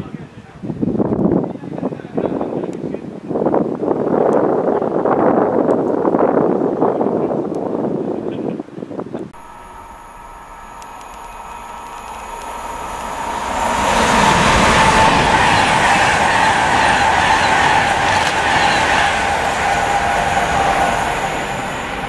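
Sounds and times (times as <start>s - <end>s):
steady high whine: 9.4s - 22.0s
train passing at speed: 9.4s - 22.0s.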